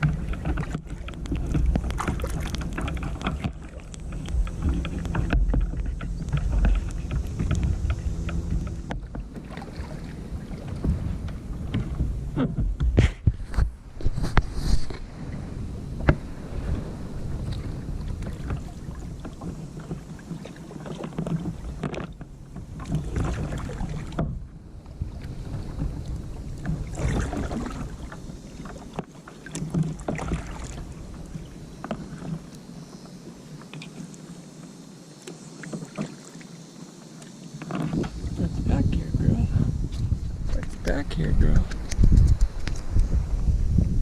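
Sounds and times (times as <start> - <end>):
paddle splashing in water: 0.0 - 43.7
low rumble: 1.2 - 13.0, 38.0 - 44.0.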